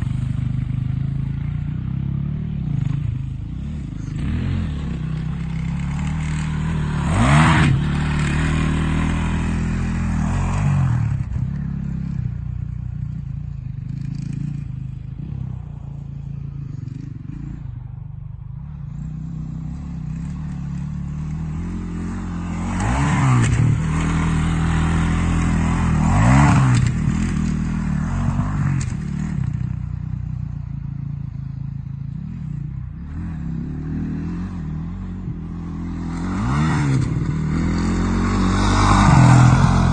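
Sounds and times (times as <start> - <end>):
motocross bike engine revving: 0.0 - 12.3, 19.0 - 30.0, 32.2 - 39.9.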